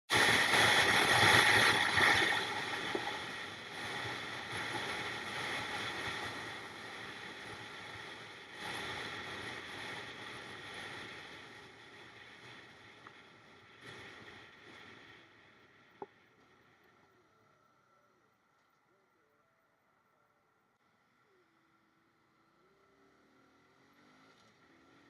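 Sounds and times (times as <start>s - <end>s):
rushing wind: 0.1s - 14.9s
motorcycle road noise: 0.1s - 15.2s, 22.5s - 25.0s.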